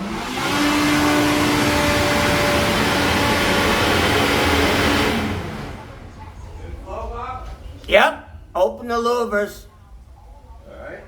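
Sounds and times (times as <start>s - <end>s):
electric blower running: 0.0s - 6.2s.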